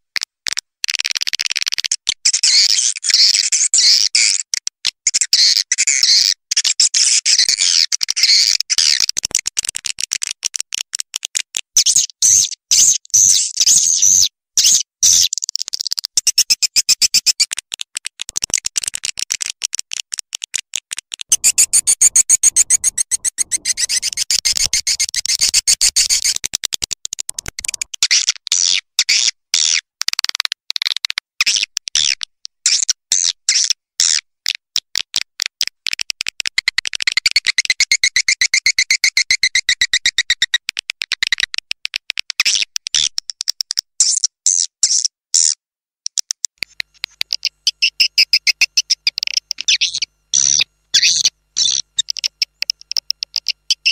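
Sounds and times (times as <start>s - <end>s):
swiftlet twittering: 21.3s - 26.4s, 47.3s - 53.9s.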